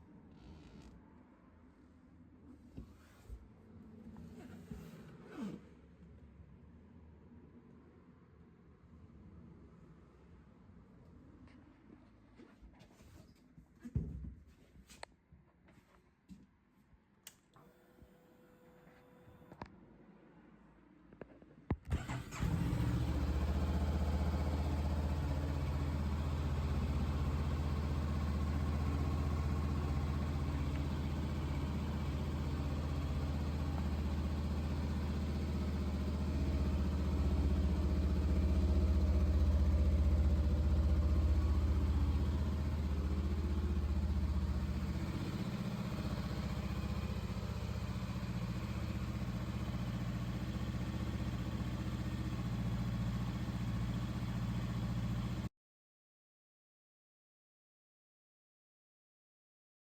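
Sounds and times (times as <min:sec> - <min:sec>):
motorcycle engine idling: 0:23.4 - 0:55.4.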